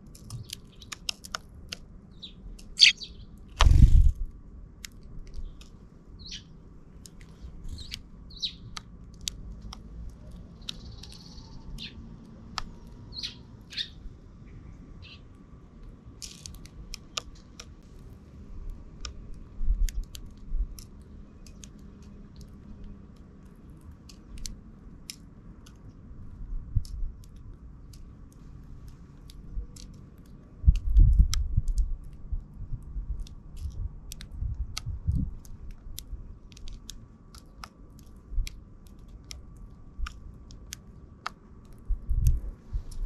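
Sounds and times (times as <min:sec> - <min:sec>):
sparrows chirping: 0:00.2 - 0:01.3, 0:02.1 - 0:03.6, 0:05.3 - 0:08.9, 0:10.2 - 0:15.4
sharp little clicks: 0:19.0 - 0:43.0.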